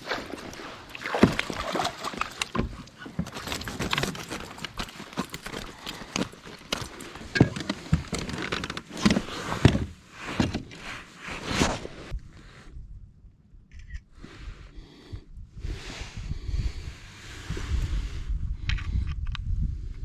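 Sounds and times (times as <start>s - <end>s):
fishing gear clicks and knocks: 0.2s - 10.8s.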